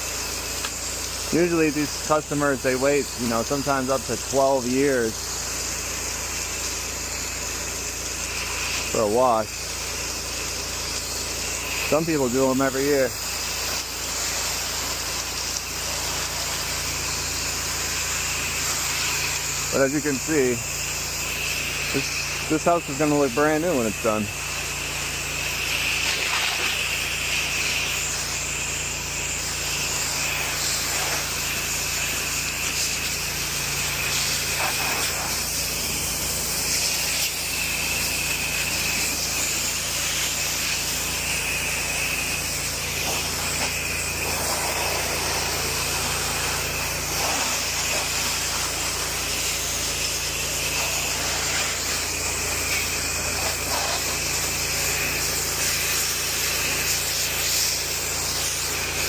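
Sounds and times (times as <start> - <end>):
high-pressure water spray hissing: 0.0 - 59.0
pressure washer engine hum: 0.0 - 59.0.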